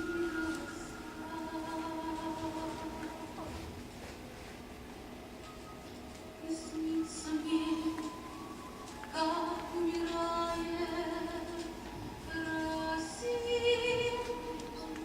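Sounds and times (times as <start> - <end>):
woman singing operatically: 0.0 - 3.4, 6.4 - 8.4, 9.0 - 15.0.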